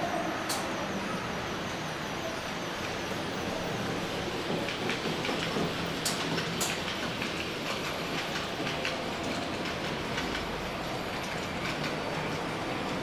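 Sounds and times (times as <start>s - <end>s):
model trains running: 0.0s - 13.0s
wheels clicking over rail joints: 4.3s - 13.0s.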